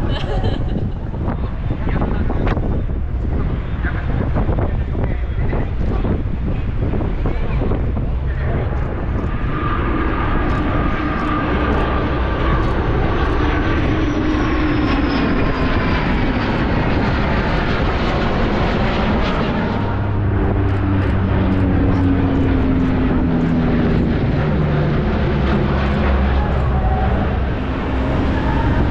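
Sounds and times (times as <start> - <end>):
aircraft engines flying past: 0.0 - 28.9
deep steady hum: 17.3 - 28.9.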